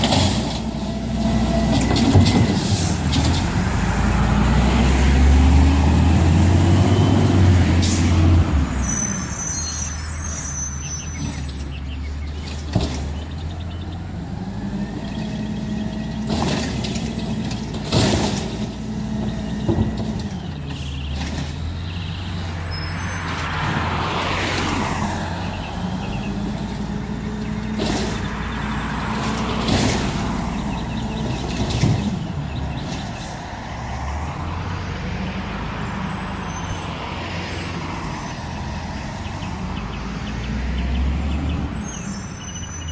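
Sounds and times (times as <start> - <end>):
garbage truck engine: 0.0 - 42.9
high squeal: 8.7 - 11.8, 22.6 - 23.4, 36.1 - 38.8, 41.8 - 42.9.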